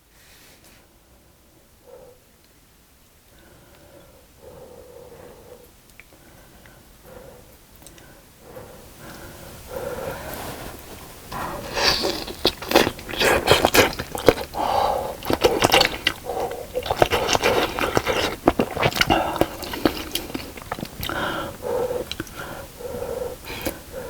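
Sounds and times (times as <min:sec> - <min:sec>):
wet chewing and mouth smacks: 0:05.8 - 0:08.2, 0:09.0 - 0:24.0.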